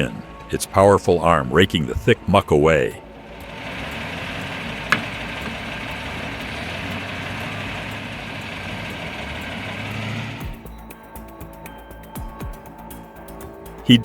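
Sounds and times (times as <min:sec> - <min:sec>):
excavator diesel engine running: 0:03.1 - 0:10.6.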